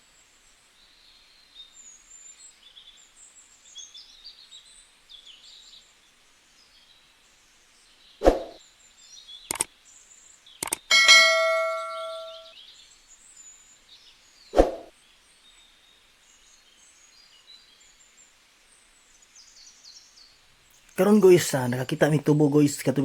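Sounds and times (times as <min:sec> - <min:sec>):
metallic clang ringing: 0:10.9 - 0:12.5.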